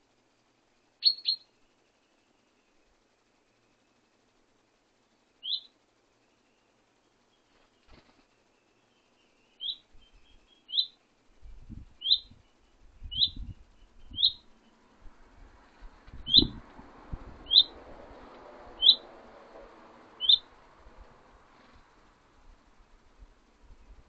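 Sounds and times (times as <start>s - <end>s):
songbird calling: 1.0s - 2.8s, 5.4s - 5.8s, 6.4s - 11.1s, 12.0s - 14.9s, 16.2s - 16.6s, 17.4s - 17.8s, 18.8s - 19.1s, 20.2s - 20.5s.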